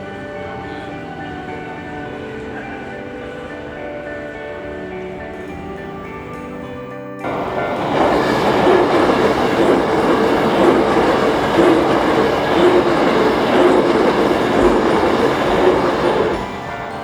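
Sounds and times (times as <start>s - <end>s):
train wheel and track noise: 7.2s - 17.0s.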